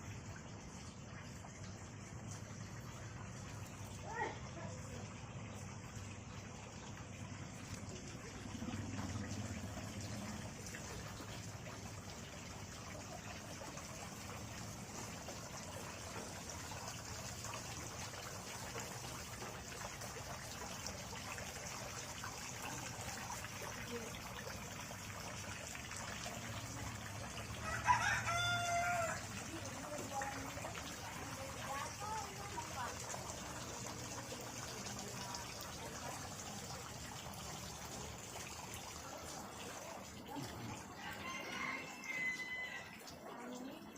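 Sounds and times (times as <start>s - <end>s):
water trickling: 0.0s - 43.9s
rooster crowing: 27.6s - 29.3s, 41.0s - 43.0s.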